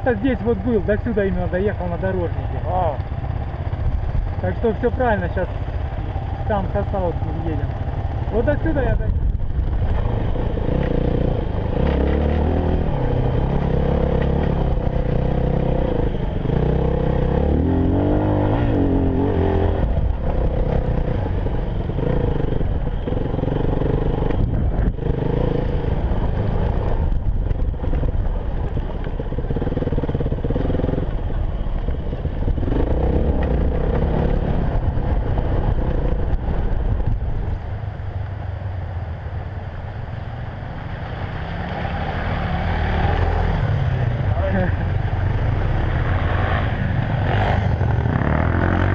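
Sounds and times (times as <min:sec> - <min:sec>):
motorcycle engine revving: 0:00.0 - 0:38.6, 0:40.0 - 0:48.9.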